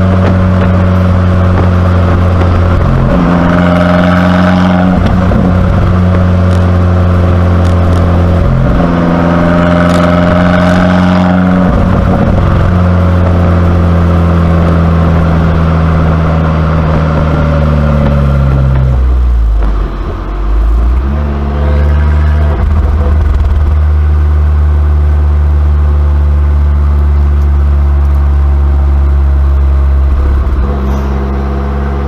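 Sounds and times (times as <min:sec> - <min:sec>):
car engine running loud: 0:00.0 - 0:32.0.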